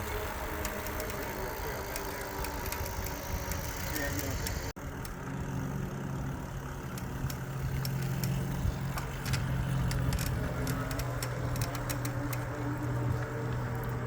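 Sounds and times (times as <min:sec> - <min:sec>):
e-bike motor and tyres humming: 0:00.0 - 0:14.0
light ticks and clicks: 0:06.9 - 0:14.0.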